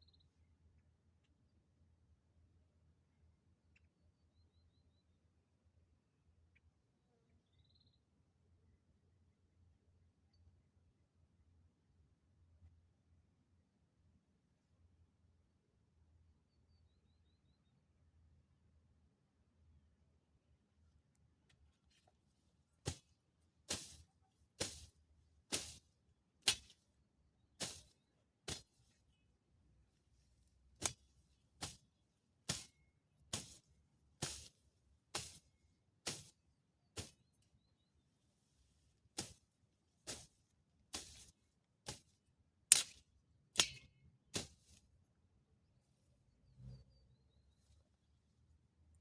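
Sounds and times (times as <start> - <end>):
hand tool sharp strokes: 23.7 - 24.9, 25.5 - 25.8, 26.4 - 26.8, 27.6 - 27.9, 28.5 - 29.0, 30.8 - 31.9, 32.5 - 34.5, 35.1 - 35.4, 36.1 - 36.4, 39.2 - 39.4, 40.1 - 40.3, 40.9 - 42.1, 42.7 - 43.0, 44.4 - 44.8.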